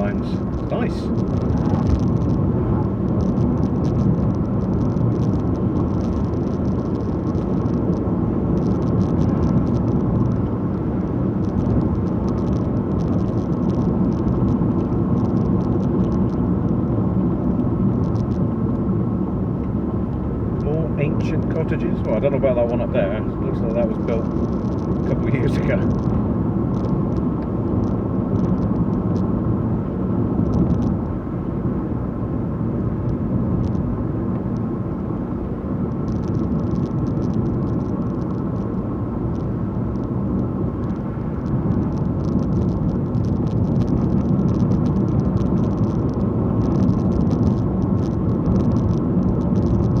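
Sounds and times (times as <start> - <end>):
car engine and road noise: 0.0 - 50.0
faint light ticks and rattles: 0.1 - 2.4, 3.0 - 19.0, 19.6 - 29.3, 35.4 - 50.0.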